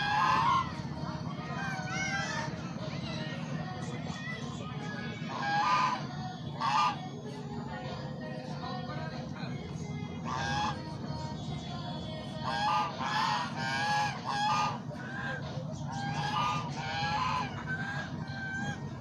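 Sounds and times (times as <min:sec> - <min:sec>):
waterfowl honking: 0:00.0 - 0:00.8, 0:01.4 - 0:03.9, 0:05.0 - 0:07.0, 0:10.2 - 0:10.8, 0:12.3 - 0:19.0
steady low hum: 0:00.0 - 0:19.0.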